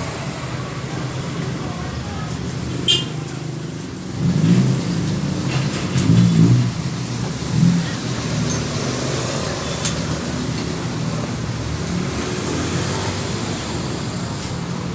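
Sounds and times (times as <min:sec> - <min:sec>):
engine running and revving: 0:03.5 - 0:14.9.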